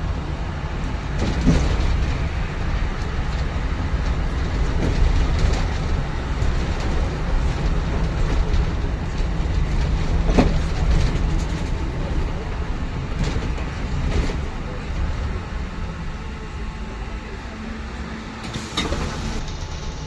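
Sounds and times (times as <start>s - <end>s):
bus engine and road rumble: 0.0s - 20.0s
cabin rattling: 0.7s - 15.6s.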